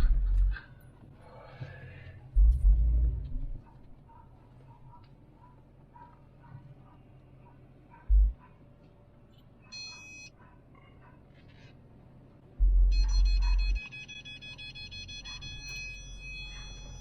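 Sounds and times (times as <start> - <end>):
heavy low rumble: 0.0 - 0.6, 2.3 - 3.6, 8.1 - 8.4, 12.6 - 13.0
continuous steady warning tone: 0.0 - 17.0
parking sensor beep: 9.7 - 10.3, 12.9 - 17.0.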